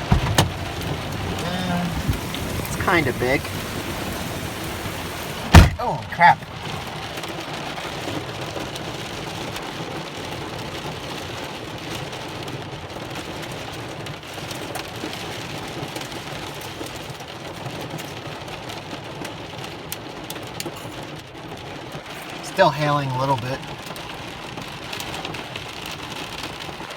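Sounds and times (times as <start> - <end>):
hail ticking: 0.0 - 10.9
heavy rain pouring: 0.0 - 26.9.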